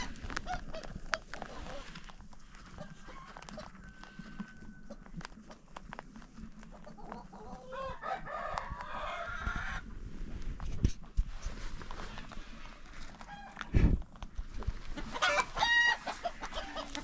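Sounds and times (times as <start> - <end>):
chickens clucking: 0.0 - 10.0, 12.0 - 17.0
rooster crowing: 7.8 - 9.8.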